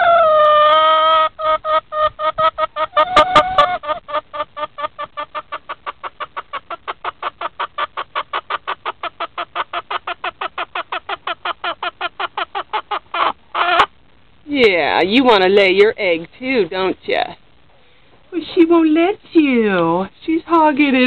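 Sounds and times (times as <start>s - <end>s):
hen clucking rapidly: 0.0s - 14.0s, 14.7s - 17.4s.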